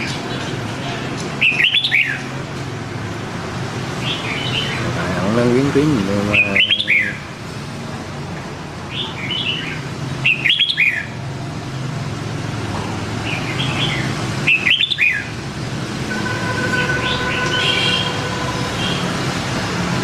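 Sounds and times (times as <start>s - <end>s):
bulbul singing warbling phrases: 4.7s - 7.3s.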